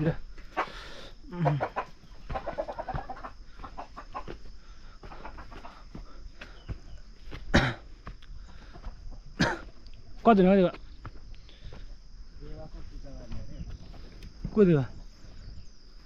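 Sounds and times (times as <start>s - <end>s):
chickens clucking: 0.0s - 10.1s.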